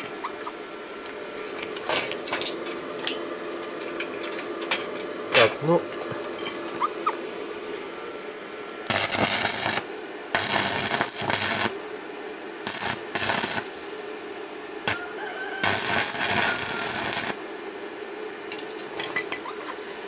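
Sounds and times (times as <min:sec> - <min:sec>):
welding arc crackling: 0:08.8 - 0:11.8, 0:12.6 - 0:13.8, 0:14.8 - 0:17.4.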